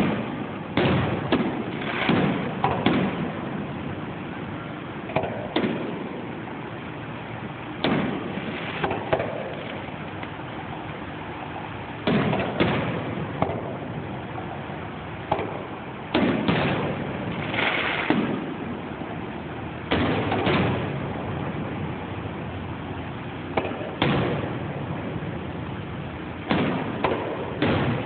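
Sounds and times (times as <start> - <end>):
firework booms with echo: 0.0 - 3.9, 5.1 - 6.3, 7.8 - 9.9, 12.0 - 14.2, 15.3 - 19.2, 19.8 - 22.0, 23.5 - 25.4, 26.4 - 28.0.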